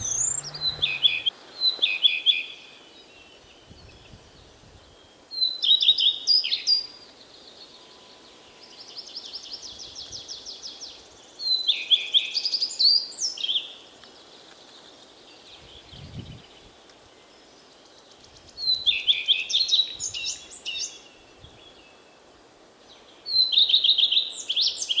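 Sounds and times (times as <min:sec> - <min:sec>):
soft fast bird trill: 0:00.0 - 0:01.3
starling singing rapid notes: 0:00.0 - 0:01.3.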